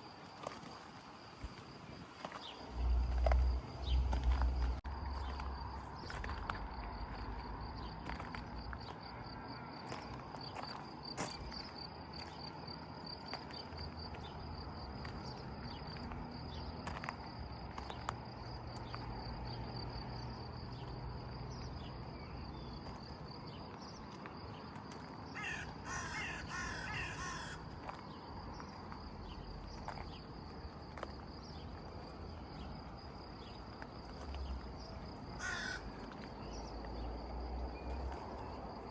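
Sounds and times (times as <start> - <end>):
crow cawing: 25.4 - 27.7, 35.4 - 36.0.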